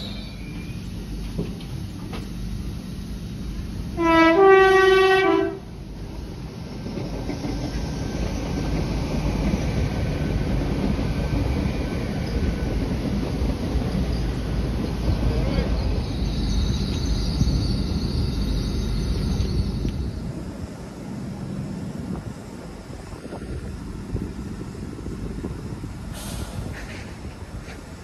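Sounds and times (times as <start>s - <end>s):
train rumble and wheel clatter: 0.0s - 28.0s
two-tone train horn: 4.0s - 5.8s.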